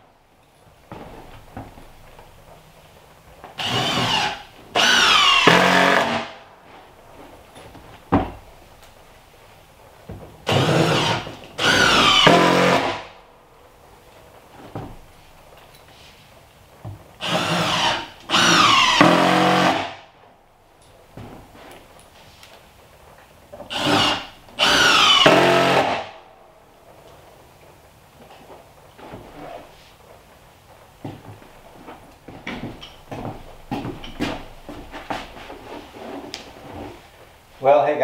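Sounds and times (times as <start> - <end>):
cordless drill driving screws: 3.6 - 6.4, 10.5 - 13.1, 17.2 - 19.9, 23.7 - 26.1.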